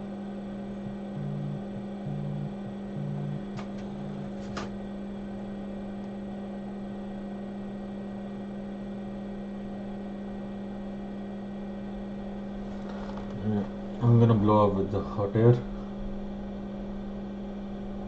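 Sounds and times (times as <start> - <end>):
low pulsing tone: 0.0 - 4.4
electrical hum: 0.0 - 18.0.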